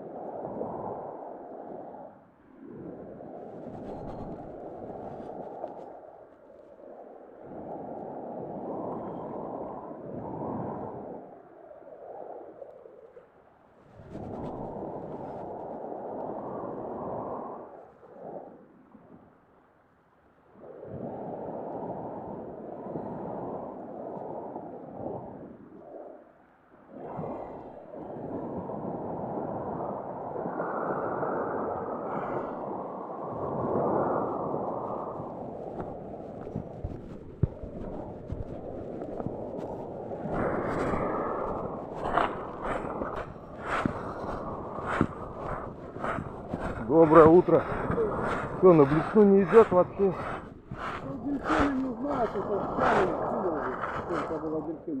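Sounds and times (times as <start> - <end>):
wind rushing over microphone: 0.0 - 13.2, 13.8 - 18.7, 20.6 - 26.2, 26.9 - 55.0
sea waves washing on shore: 26.9 - 55.0.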